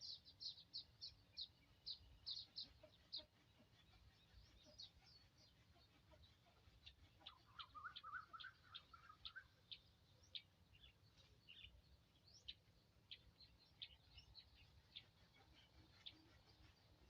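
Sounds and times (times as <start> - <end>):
small birds chirping: 0.0 - 17.0
bird warbling: 7.2 - 9.5.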